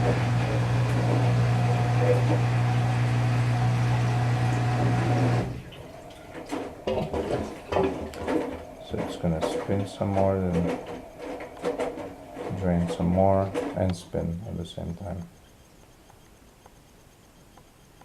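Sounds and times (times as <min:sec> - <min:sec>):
washer drain pump humming: 0:00.0 - 0:16.8.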